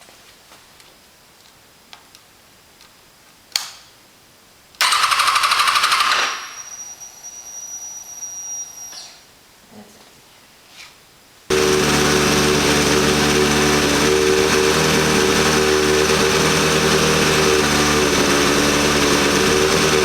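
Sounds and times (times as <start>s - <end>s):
motorcycle starter cranking: 4.8s - 6.6s, 11.5s - 20.0s.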